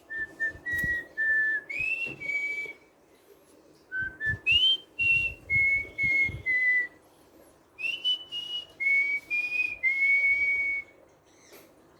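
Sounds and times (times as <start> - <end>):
cockatiel whistling a tune: 0.1 - 2.8, 3.9 - 7.0, 7.8 - 10.9.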